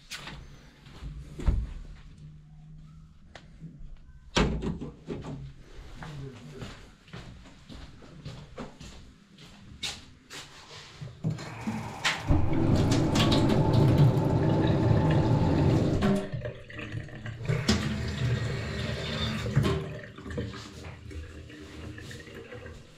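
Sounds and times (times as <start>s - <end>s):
water running from faucet: 11.5s - 20.8s.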